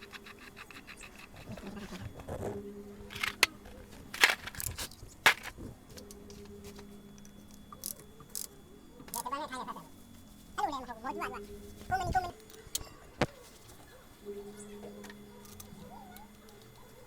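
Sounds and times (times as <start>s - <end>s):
faint steady hum: 0.0s - 17.0s
metal tools clinking and scraping: 3.1s - 6.1s.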